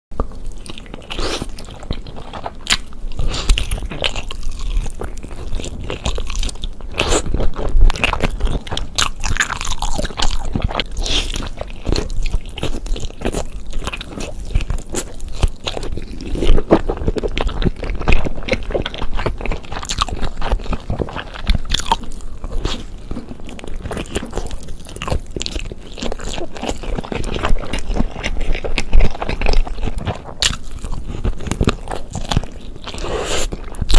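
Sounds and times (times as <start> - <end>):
person biting and chewing: 0.2 - 33.9.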